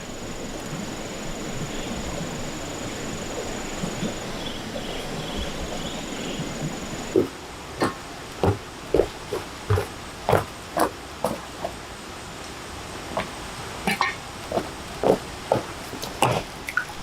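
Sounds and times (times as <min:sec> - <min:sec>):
pulsing insect call: 0:00.0 - 0:11.4
high insect drone: 0:00.0 - 0:11.8.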